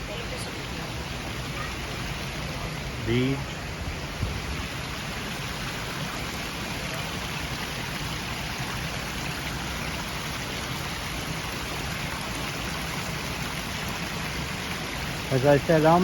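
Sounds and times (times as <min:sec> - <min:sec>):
running and falling water: 0:00.0 - 0:16.0.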